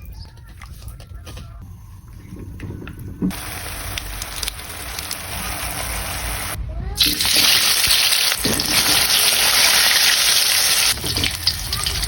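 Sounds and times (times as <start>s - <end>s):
chicken sizzling in hot oil: 3.3s - 12.0s.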